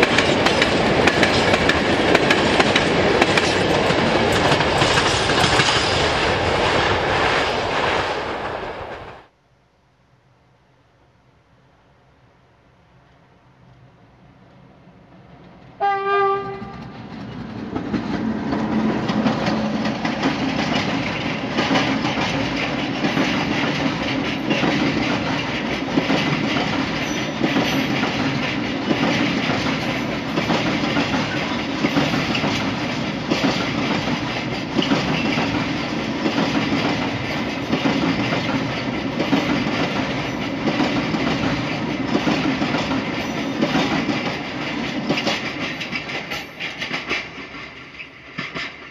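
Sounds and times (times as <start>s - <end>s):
train wheels clacking over rail joints: 0.0s - 8.0s, 15.4s - 48.9s
locomotive horn blast: 15.8s - 16.8s.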